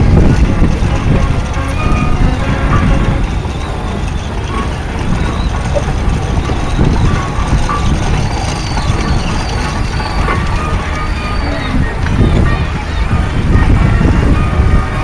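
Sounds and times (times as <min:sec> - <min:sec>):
heavy engine rumble: 0:00.0 - 0:15.0.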